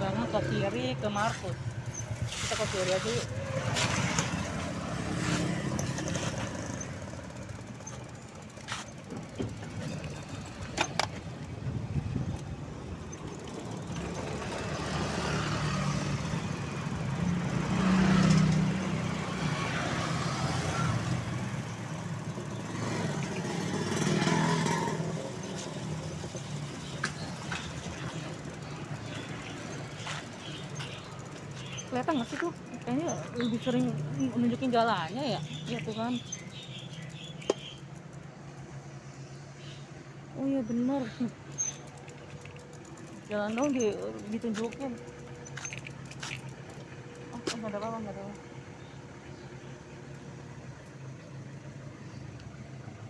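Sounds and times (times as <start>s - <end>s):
motor vehicles passing: 0.0s - 53.0s
sharp clicks: 35.5s - 38.6s.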